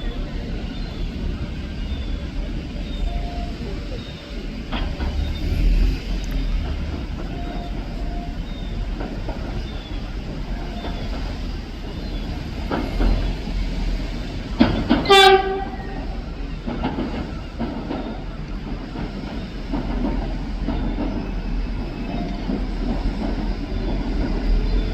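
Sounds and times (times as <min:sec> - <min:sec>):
train rumbling over rails: 0:00.0 - 0:24.9
wheels clicking over rail joints: 0:00.0 - 0:24.9
train horn blast: 0:15.0 - 0:16.2.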